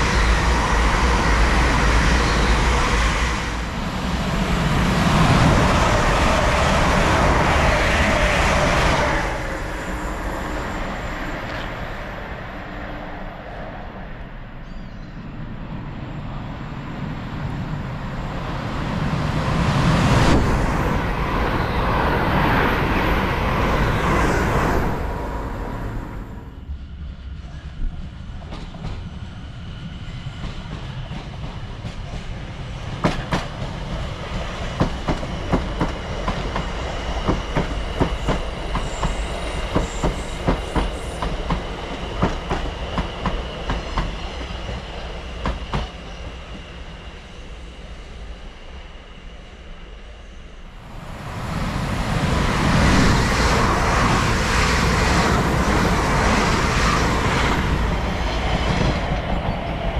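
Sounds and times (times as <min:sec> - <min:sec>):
train rushing past: 0:00.0 - 0:59.9
train wheels clicking over rail joints: 0:33.0 - 0:33.8.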